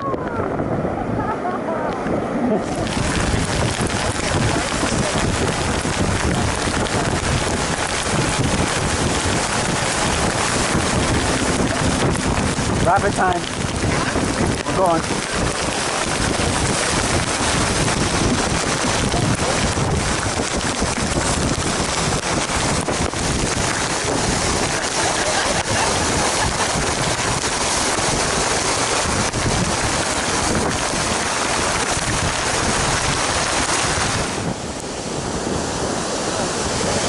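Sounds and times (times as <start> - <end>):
whitewater rushing and splashing: 0.0 - 37.0
wind buffeting microphone: 0.0 - 37.0.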